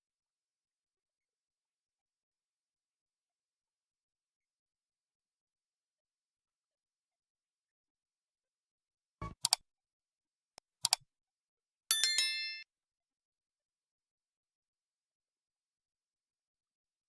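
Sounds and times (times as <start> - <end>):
sharp clicks: 10.6 - 11.0
bright bell ding: 11.9 - 12.7.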